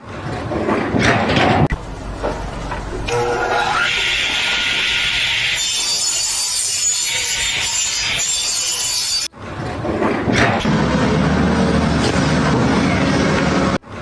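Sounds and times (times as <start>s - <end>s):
different noisy sound: 0.0s - 14.0s
rasping scraping noise: 0.5s - 9.0s.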